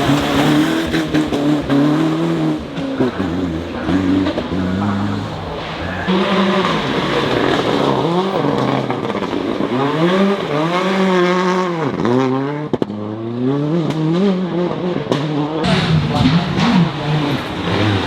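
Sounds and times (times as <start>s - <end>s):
rally car engine revving: 0.0s - 18.0s
exhaust cracks: 2.6s - 13.0s, 15.0s - 18.0s.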